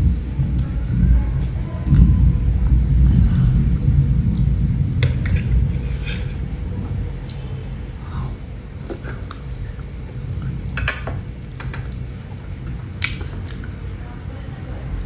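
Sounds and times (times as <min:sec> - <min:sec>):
low rumble: 0:00.0 - 0:15.0
plate and utensils clinking: 0:05.0 - 0:06.4.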